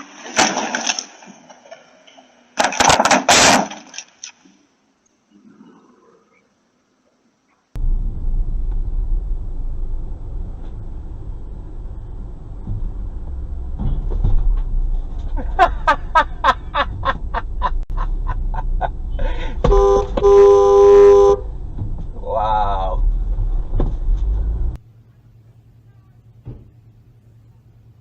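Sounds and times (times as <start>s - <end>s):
car road rumble: 7.8s - 28.0s
car horn toots: 19.6s - 21.5s
long car horn blast: 19.6s - 21.5s.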